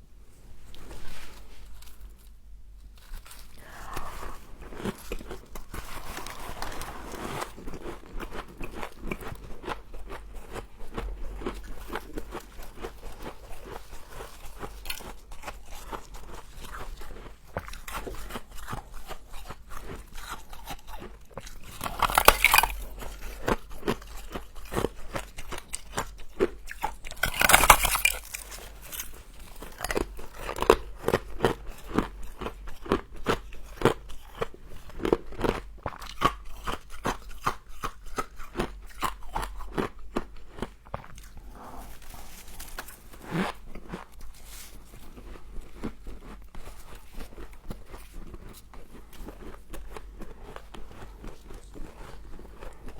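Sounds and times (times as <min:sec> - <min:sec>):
chewing ice crunches: 0:03.0 - 0:52.9.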